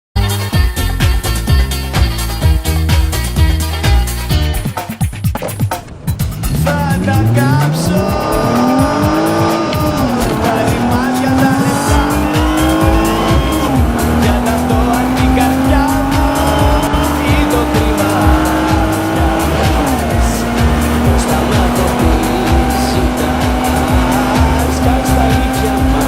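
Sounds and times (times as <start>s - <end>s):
dance music with steady beat: 0.2s - 26.0s
car engine accelerating: 5.3s - 26.0s
loud exhaust: 5.9s - 26.0s.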